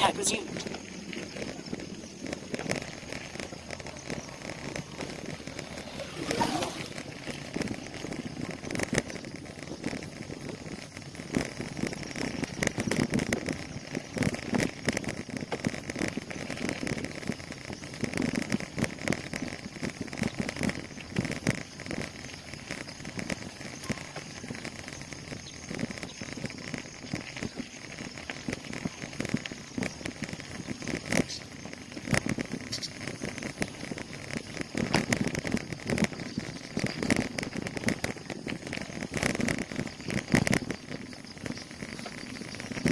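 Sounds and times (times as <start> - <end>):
steady rushing noise: 0.0 - 42.9
bicycle parts rattling: 0.5 - 15.7.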